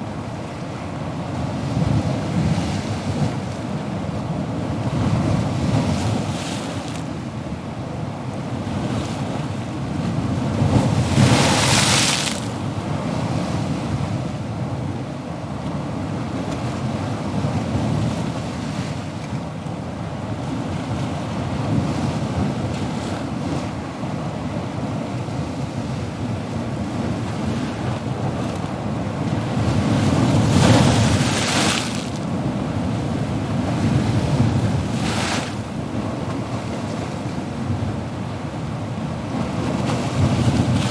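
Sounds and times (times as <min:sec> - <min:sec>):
waves breaking: 0:05.8 - 0:07.3, 0:10.4 - 0:13.8, 0:27.0 - 0:38.0
ocean waves washing: 0:09.3 - 0:13.9, 0:25.8 - 0:40.9.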